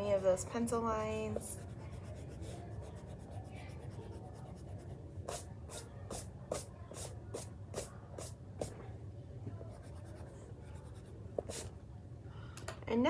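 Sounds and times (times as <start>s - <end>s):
eraser rubbing on paper: 1.3s - 8.7s.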